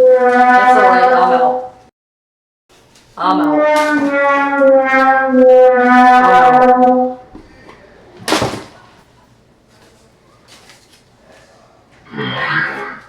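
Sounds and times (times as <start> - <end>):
brass horn held notes: 0.0 - 1.7, 3.2 - 7.3.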